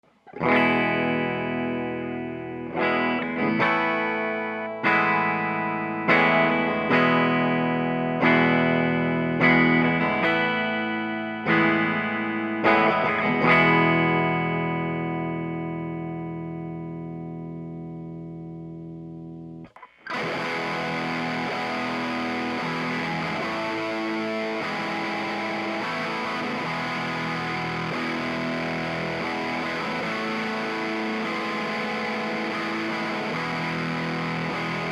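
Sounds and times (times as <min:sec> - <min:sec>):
distorted electric guitar chords: 0:00.1 - 0:34.9.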